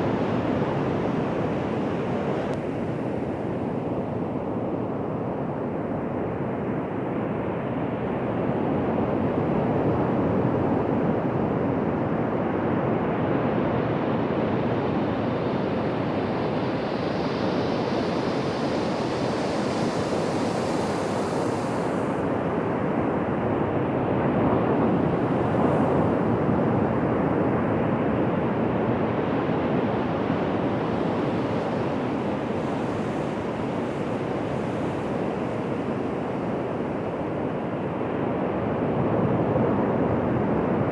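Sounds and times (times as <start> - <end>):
ocean waves breaking on beach: 16.9 - 22.8, 29.2 - 40.7.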